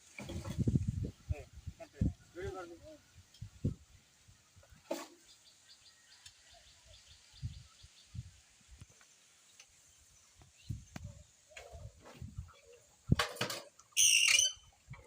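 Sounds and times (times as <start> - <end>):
faint bird chirping: 1.1 - 13.0.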